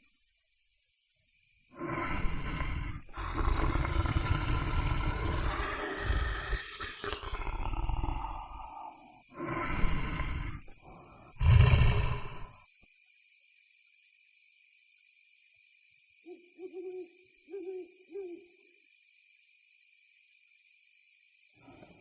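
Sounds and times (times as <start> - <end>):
rough animal noise: 1.7 - 12.6.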